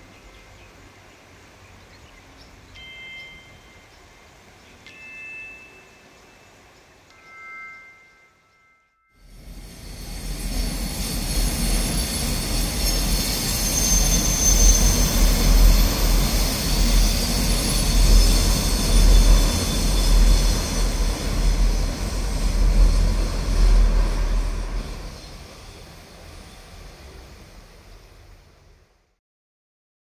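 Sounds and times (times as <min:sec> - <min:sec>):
train rumbling over bridge: 0:00.0 - 0:08.0, 0:09.2 - 0:29.1
high-pitched wheel squeal: 0:09.2 - 0:27.1.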